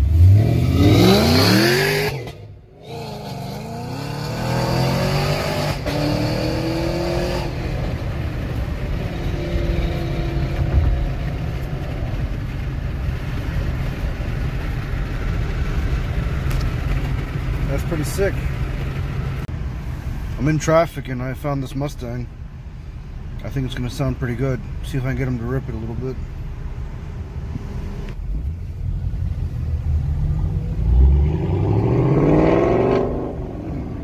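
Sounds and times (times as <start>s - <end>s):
car engine revving hard: 0.0s - 11.3s, 30.4s - 34.0s
engine and road noise inside car: 0.0s - 34.0s.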